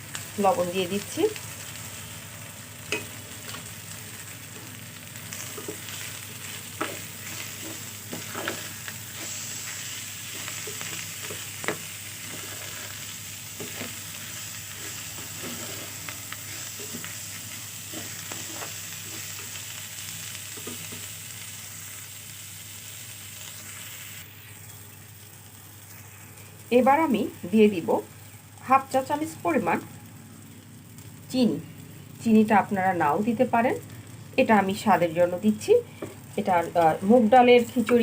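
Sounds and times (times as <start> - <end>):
food sizzling in oil: 0.0 - 38.0
spatula scraping a pan: 5.3 - 19.4.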